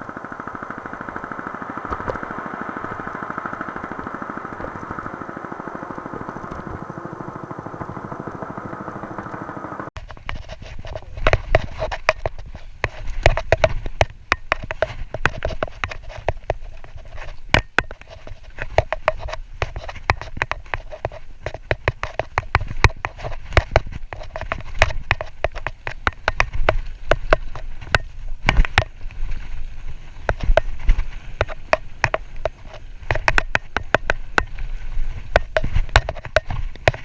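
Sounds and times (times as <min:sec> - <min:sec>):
tyres rumbling on dirt: 0:00.0 - 0:10.0
wind on microphone: 0:00.0 - 0:17.5
bike knocking and rattling: 0:00.0 - 0:37.0.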